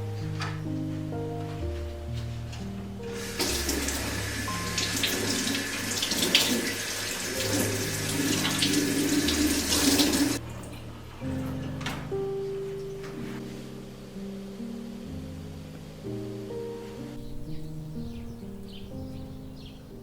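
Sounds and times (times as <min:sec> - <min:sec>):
soft music with plucked notes: 0:00.0 - 0:05.9, 0:07.3 - 0:20.0
tap running water into sink: 0:03.2 - 0:10.9.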